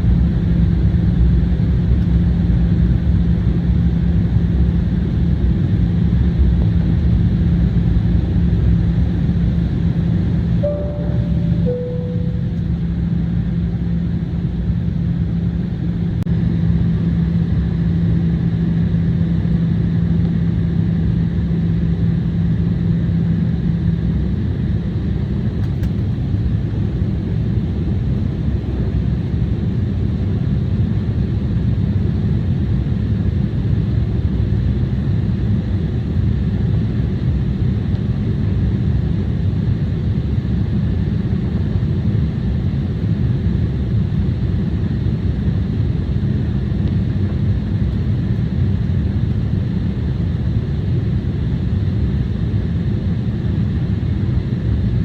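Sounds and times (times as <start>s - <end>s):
low hum: 0.0s - 16.6s
jet engine cabin noise: 0.0s - 55.0s.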